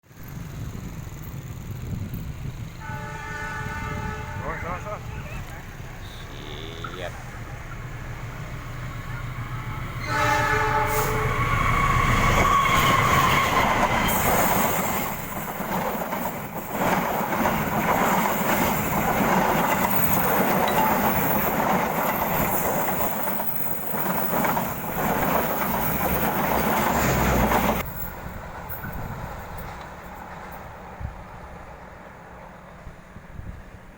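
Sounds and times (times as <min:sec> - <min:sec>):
train horn: 0:02.8 - 0:05.0, 0:09.5 - 0:13.8
train wheels rattling over rails: 0:05.3 - 0:33.8.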